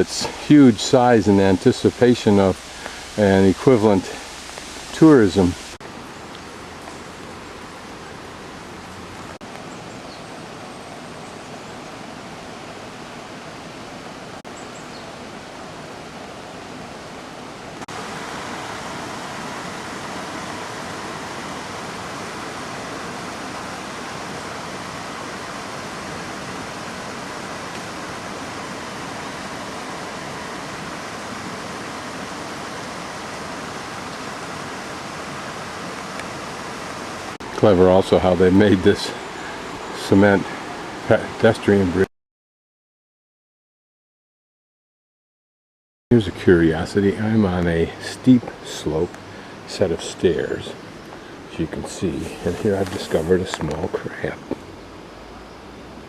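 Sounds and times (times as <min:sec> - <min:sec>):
waterfall rushing: 0:00.0 - 0:09.4, 0:10.4 - 0:42.0.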